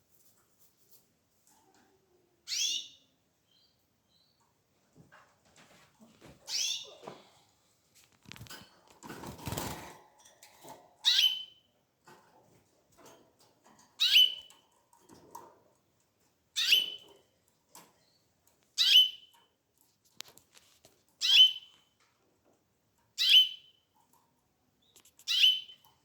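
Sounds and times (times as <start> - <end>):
canary calling: 6.5 - 7.0, 14.0 - 14.5, 16.6 - 17.0, 18.8 - 19.3, 21.2 - 21.7, 23.2 - 23.8, 25.2 - 25.8.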